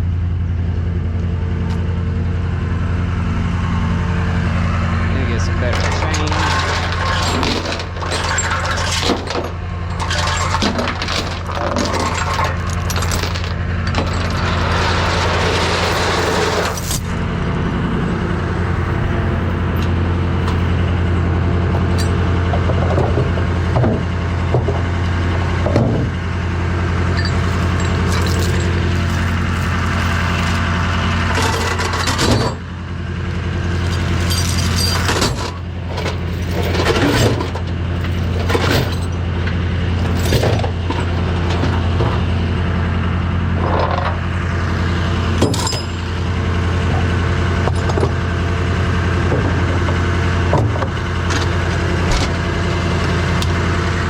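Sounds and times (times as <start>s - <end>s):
heavy engine running steadily: 0.0s - 54.0s
clanks and knocks: 5.6s - 17.0s, 21.8s - 24.8s, 33.8s - 42.3s, 49.3s - 52.6s.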